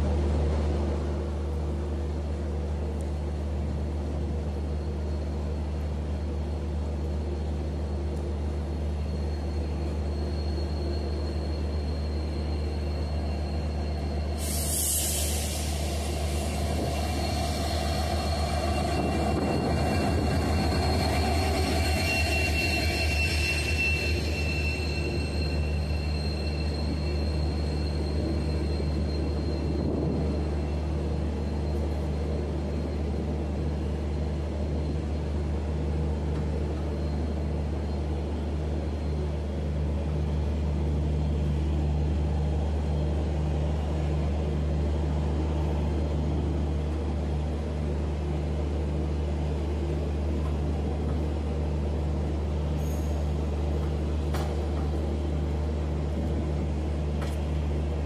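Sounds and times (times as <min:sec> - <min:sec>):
diesel locomotive drone: 0:00.0 - 0:58.0
train coaches rolling: 0:08.2 - 0:58.0
wheel and brake squeal: 0:08.7 - 0:35.0, 0:52.7 - 0:57.8.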